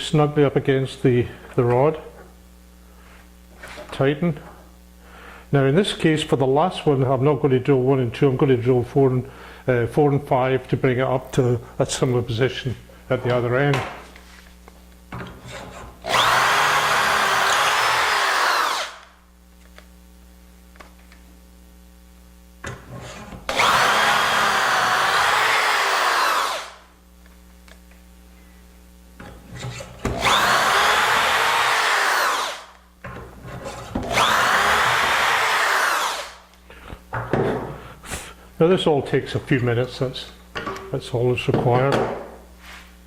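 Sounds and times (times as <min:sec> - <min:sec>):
electric drill boring into wood: 0:15.5 - 0:19.1, 0:23.5 - 0:26.8, 0:30.1 - 0:32.8, 0:34.0 - 0:36.5.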